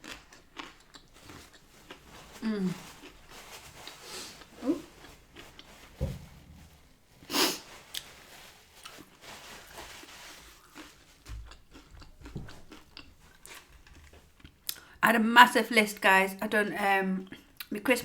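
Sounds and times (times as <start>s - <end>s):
person chewing: 0.0s - 6.6s, 10.3s - 14.9s
soft low thumps: 5.9s - 6.9s.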